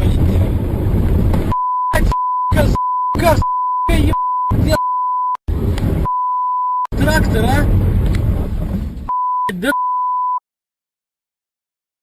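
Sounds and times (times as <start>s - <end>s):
voice: 0.0s - 0.5s, 1.9s - 4.8s, 6.9s - 7.7s, 9.4s - 9.9s
car engine and road noise: 0.0s - 10.3s
censor bleep: 1.5s - 5.4s, 6.0s - 6.9s, 9.1s - 10.4s.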